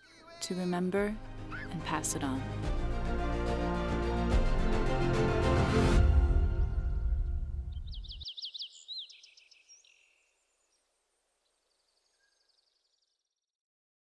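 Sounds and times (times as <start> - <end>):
background music: 0.3 - 8.2
small bird chirping: 7.7 - 13.3
faint bird trill: 7.8 - 10.8, 11.5 - 13.2.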